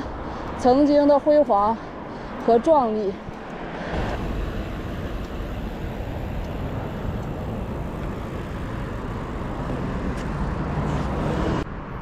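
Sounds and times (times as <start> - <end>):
motor traffic: 0.0 - 12.0
road noise: 0.0 - 12.0
wind rumble on microphone: 3.2 - 12.0.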